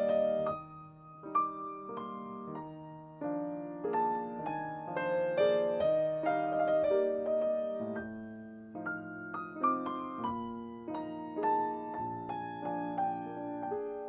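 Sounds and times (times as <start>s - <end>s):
soft piano music: 0.0s - 14.0s.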